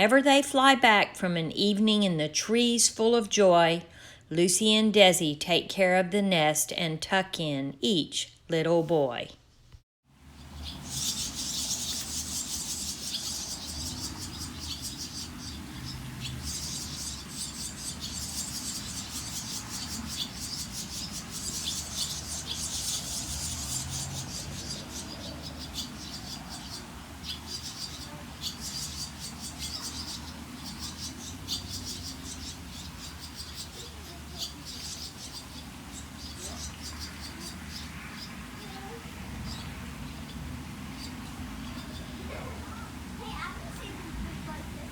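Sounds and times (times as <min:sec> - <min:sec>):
small birds chirping: 0:10.2 - 0:44.9.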